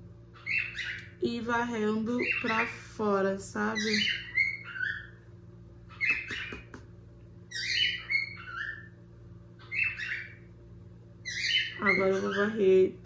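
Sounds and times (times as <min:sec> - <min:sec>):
steady low hum: 0:00.0 - 0:13.0
bird chirping: 0:00.3 - 0:01.2, 0:02.2 - 0:02.8, 0:03.7 - 0:05.2, 0:05.9 - 0:06.8, 0:07.5 - 0:10.5, 0:11.2 - 0:12.7.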